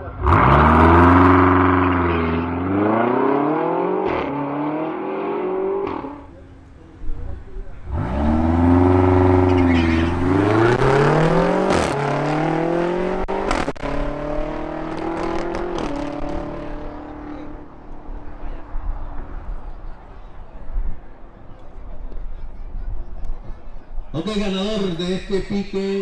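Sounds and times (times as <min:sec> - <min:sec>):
cars accelerating at full throttle: 0:00.0 - 0:21.3
gear changes: 0:05.6 - 0:18.5.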